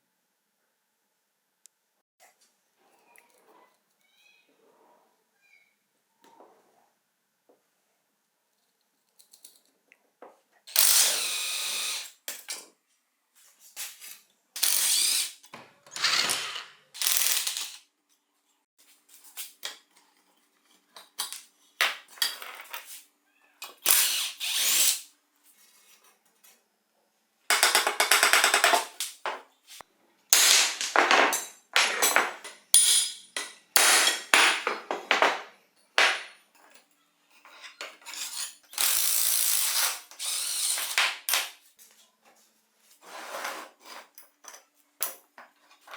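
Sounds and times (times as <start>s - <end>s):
power tool whirring: 38.8s - 41.0s.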